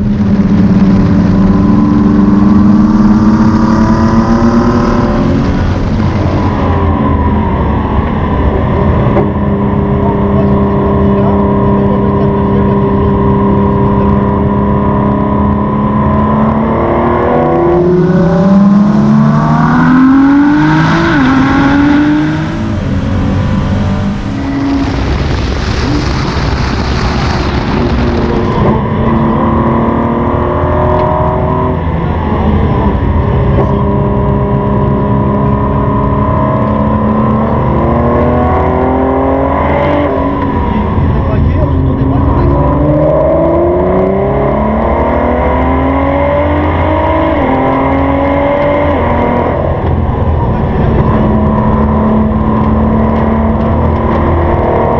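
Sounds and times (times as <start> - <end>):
car engine revving in cabin: 0.0 - 54.9.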